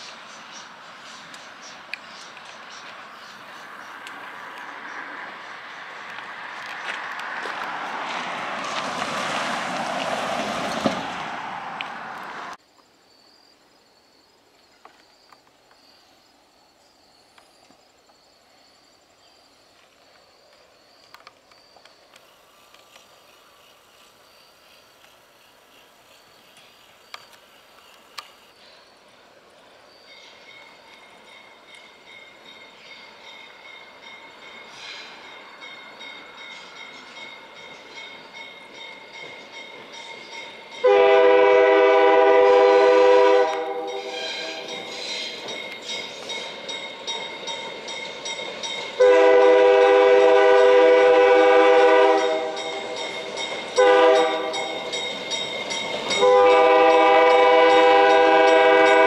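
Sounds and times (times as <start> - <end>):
train noise: 0.0 - 12.7, 13.8 - 59.0
approaching train: 0.0 - 59.0
quiet outdoor background: 0.0 - 59.0
faint steady high squeal: 12.7 - 51.0.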